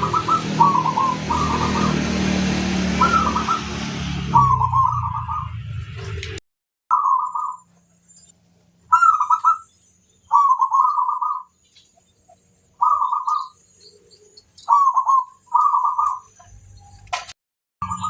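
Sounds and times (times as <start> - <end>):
dove cooing: 0.0 - 5.6, 8.9 - 9.7, 10.3 - 11.5, 12.8 - 13.6, 14.6 - 16.3.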